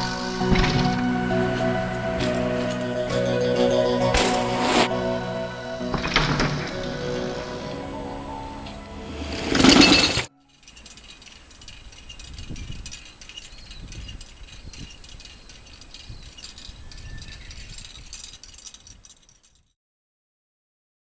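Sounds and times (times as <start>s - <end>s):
music: 0.0s - 11.4s
light metallic jingling and rattling: 9.3s - 19.8s.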